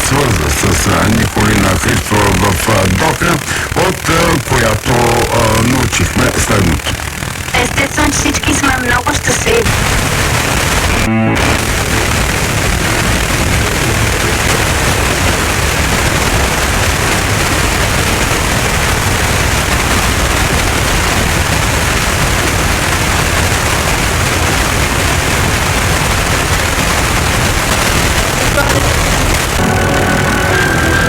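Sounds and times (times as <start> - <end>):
radio jamming noise rushing: 0.0 - 31.0.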